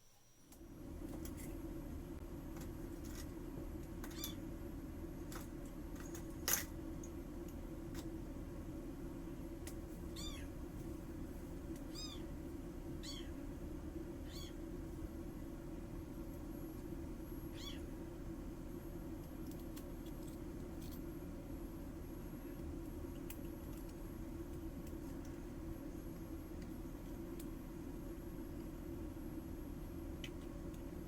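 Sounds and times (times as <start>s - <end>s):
steady low hum: 0.0s - 31.0s
small animal high calls: 4.1s - 4.4s, 10.1s - 10.6s, 11.9s - 12.3s, 13.0s - 13.4s, 14.2s - 14.6s, 17.5s - 17.9s.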